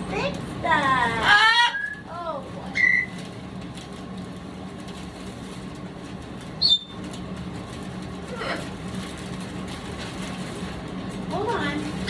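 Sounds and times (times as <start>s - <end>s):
low room hum: 0.0s - 12.0s
parrot high-pitched chirp: 1.2s - 2.1s, 2.7s - 3.2s, 6.6s - 7.0s.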